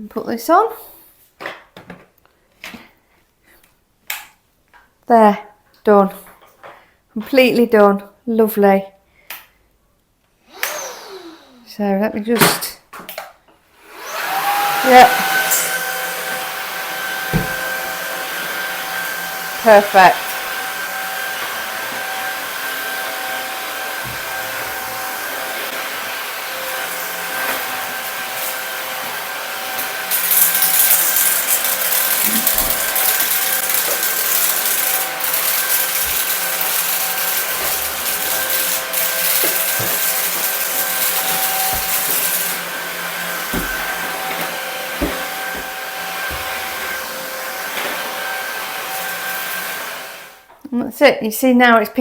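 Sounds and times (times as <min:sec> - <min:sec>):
vacuum cleaner motor whine: 0:10.5 - 0:11.6, 0:13.8 - 0:50.5.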